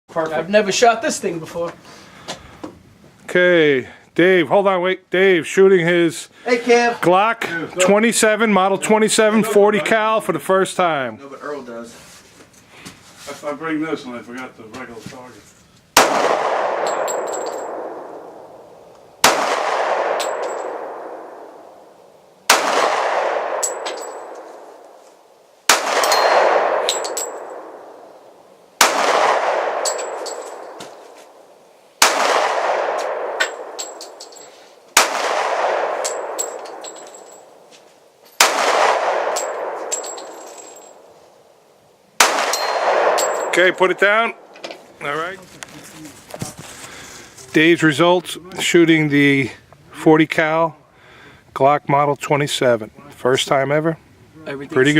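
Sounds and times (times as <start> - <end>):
pistol shots: 16.0 - 18.6, 19.2 - 21.6, 22.5 - 24.9, 25.7 - 28.1, 28.8 - 30.9, 32.0 - 34.2, 35.0 - 37.0, 38.4 - 41.1, 42.2 - 43.8.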